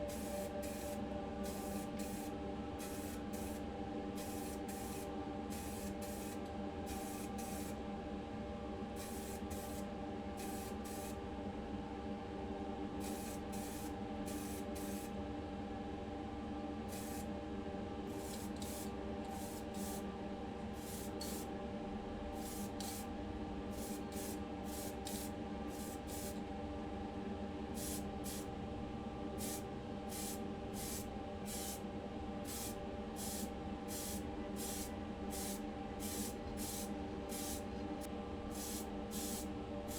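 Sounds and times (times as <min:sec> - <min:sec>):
paint spray hissing bursts: 0:20.8 - 0:21.4, 0:27.8 - 0:28.5, 0:29.4 - 0:31.8, 0:32.5 - 0:37.6, 0:38.5 - 0:39.9.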